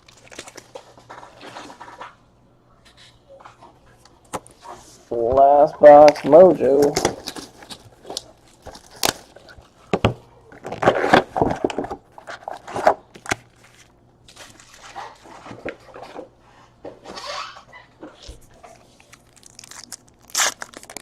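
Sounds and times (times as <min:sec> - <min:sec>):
wrapper crinkling: 0:00.0 - 0:02.1, 0:06.0 - 0:09.8, 0:18.6 - 0:21.0
card packs being handled: 0:04.3 - 0:16.3, 0:18.2 - 0:21.0.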